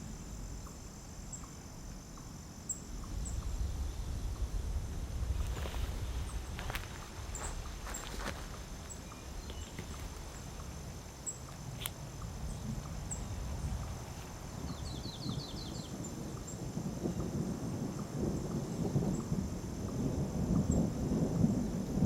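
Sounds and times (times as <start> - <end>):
distant thunder rolling: 0.0 - 22.0
low rumble: 2.8 - 11.1
faint bird chirps: 14.6 - 16.6.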